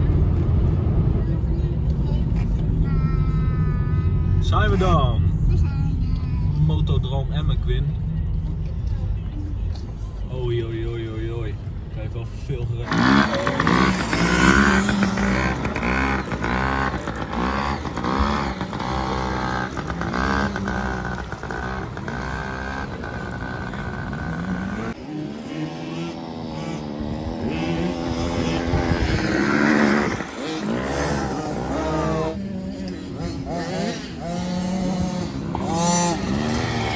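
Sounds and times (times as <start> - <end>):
dirt bike engine revving: 12.8 - 36.9.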